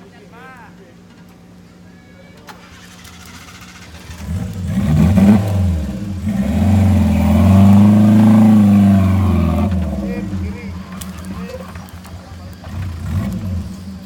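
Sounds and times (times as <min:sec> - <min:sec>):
engine revving hard: 0:02.8 - 0:14.0.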